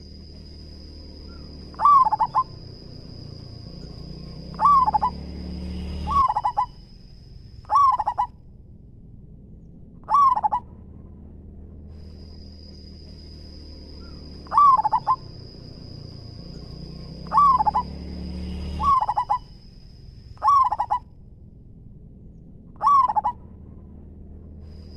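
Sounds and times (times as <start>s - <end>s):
dove cooing: 1.3s - 3.7s, 4.3s - 5.3s, 6.0s - 6.8s, 7.7s - 8.3s, 10.0s - 10.7s, 14.0s - 16.1s, 17.2s - 18.0s, 18.8s - 19.5s, 20.4s - 21.0s, 22.8s - 23.4s.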